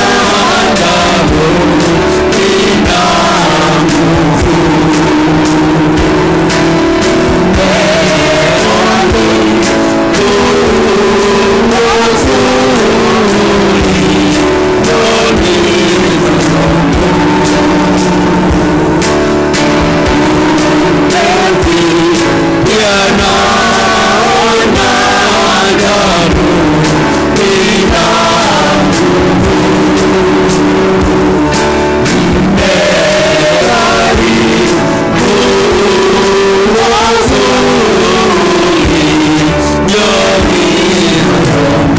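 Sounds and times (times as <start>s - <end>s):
congregation singing with band: 0.0s - 41.9s.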